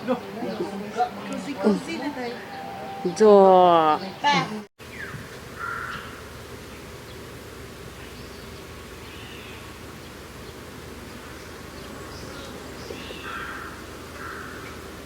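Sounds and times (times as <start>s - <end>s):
short bird calls: 4.8s - 15.0s.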